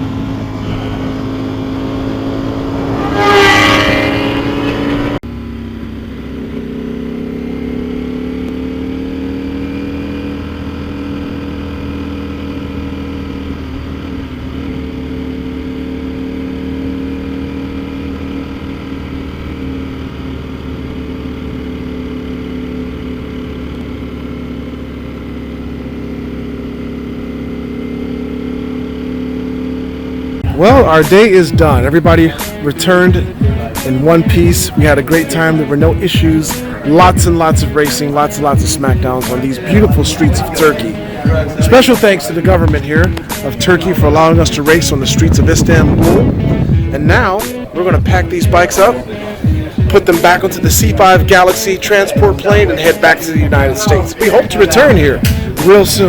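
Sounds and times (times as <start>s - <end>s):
motorcycle engine: 0.0s - 56.0s.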